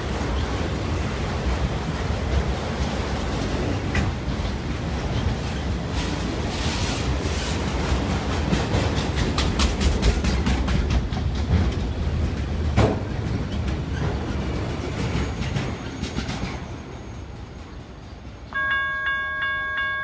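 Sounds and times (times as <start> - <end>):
freight train passing: 0.0 - 20.0
wheels clicking over rail joints: 0.1 - 5.9, 7.7 - 16.8.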